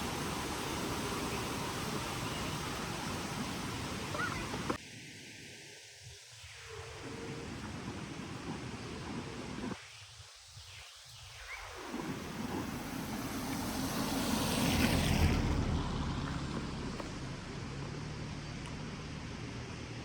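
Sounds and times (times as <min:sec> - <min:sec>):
rain falling on street: 0:00.0 - 0:04.8, 0:11.9 - 0:19.9
vehicle passing on wet road: 0:00.0 - 0:04.8, 0:11.9 - 0:20.0.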